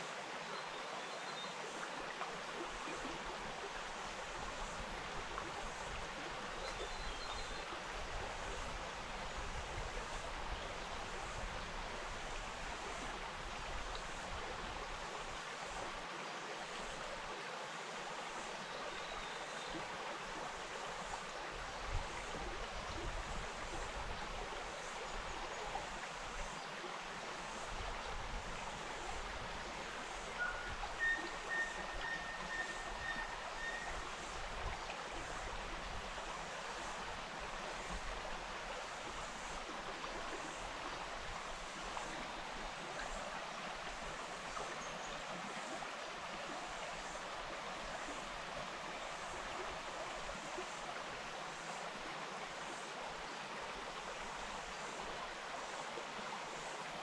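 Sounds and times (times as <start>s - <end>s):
stream flowing: 0.0s - 57.0s.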